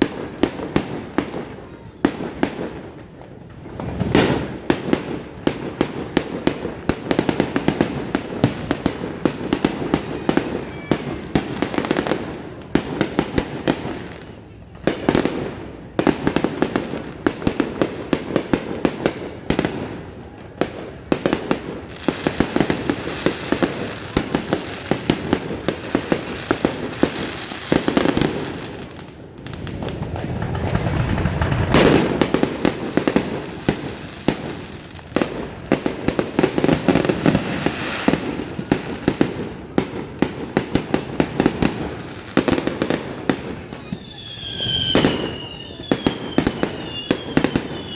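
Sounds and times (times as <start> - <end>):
fireworks cracking and banging: 0.0 - 47.9.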